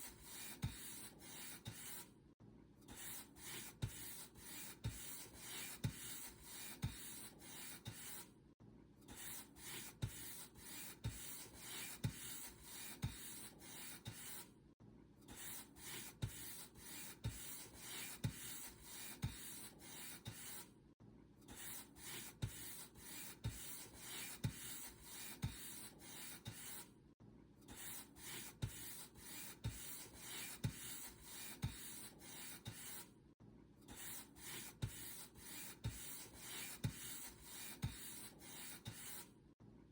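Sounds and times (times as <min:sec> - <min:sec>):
paint brush swishing on a surface: 0:27.8 - 0:33.1, 0:34.0 - 0:39.3.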